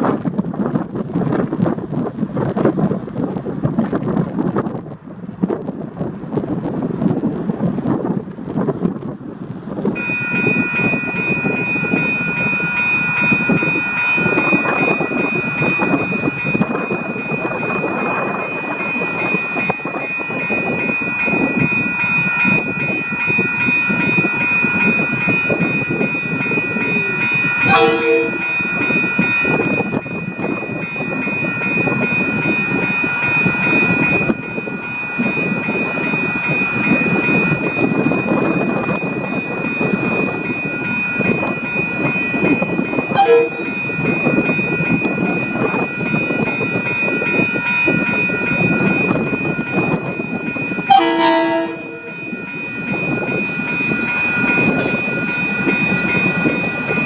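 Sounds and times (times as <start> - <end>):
vehicle rumbling and rattling: 0.0 - 10.0
short tonal blip: 27.7 - 28.6, 43.2 - 43.8, 50.9 - 52.3.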